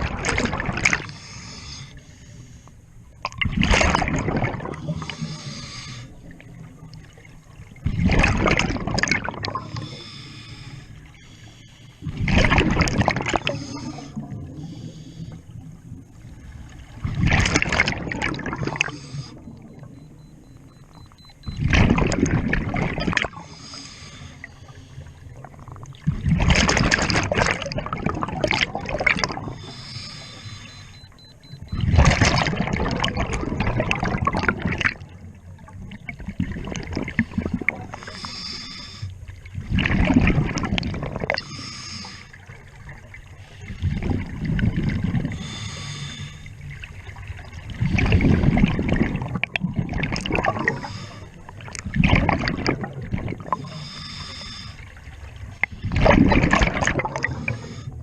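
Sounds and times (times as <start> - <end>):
exhaled bubbles gurgling: 0.0 - 2.3, 3.0 - 58.0
regulator inhalation hiss: 5.0 - 6.1, 9.8 - 12.0, 29.6 - 31.0, 38.0 - 39.1.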